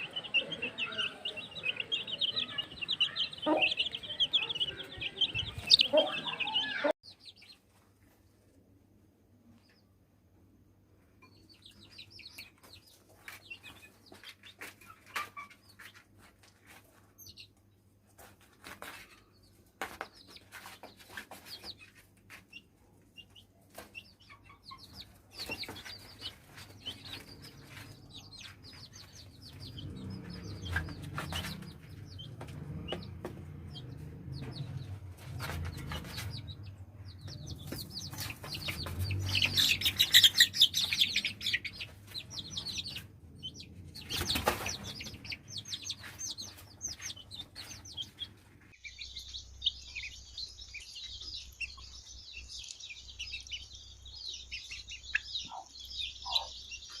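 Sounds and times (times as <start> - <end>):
chicks peeping: 0.0 - 8.5, 11.0 - 57.0.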